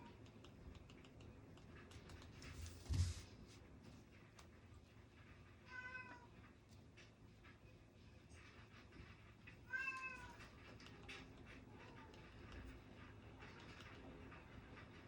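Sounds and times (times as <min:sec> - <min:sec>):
faint ticks and taps: 0:00.0 - 0:02.8, 0:08.3 - 0:15.0
cat meowing: 0:09.7 - 0:10.4.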